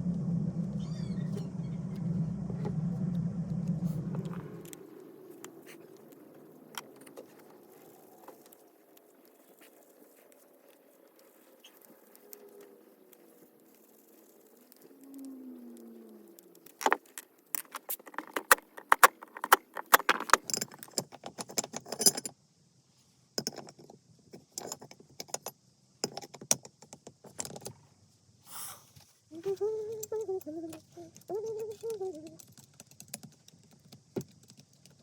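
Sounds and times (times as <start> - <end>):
metal parts clicking and rattling: 16.6 - 22.4, 23.4 - 27.8, 29.8 - 35.0.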